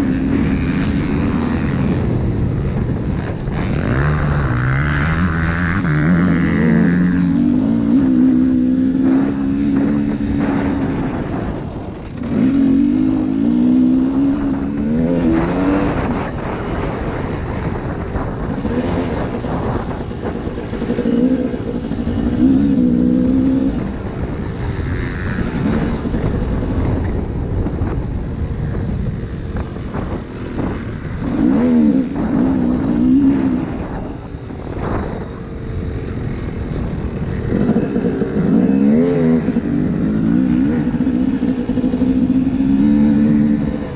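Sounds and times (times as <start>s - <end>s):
dirt bike engine revving: 0.0s - 27.2s, 29.1s - 43.9s.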